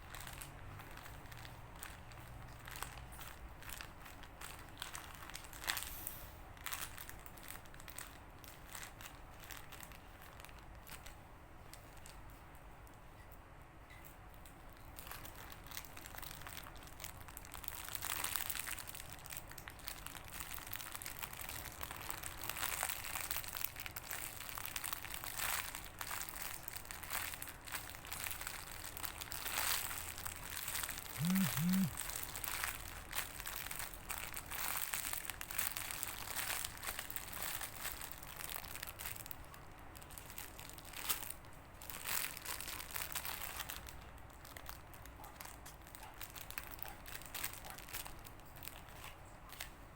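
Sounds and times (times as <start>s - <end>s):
toys crinkling and rustling: 0.0s - 12.5s, 14.4s - 49.8s
short low tones: 31.2s - 32.0s.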